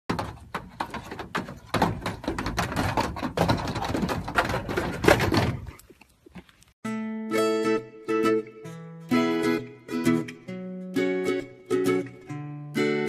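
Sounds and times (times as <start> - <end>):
hooves clattering on metal roof: 0.1 - 5.9.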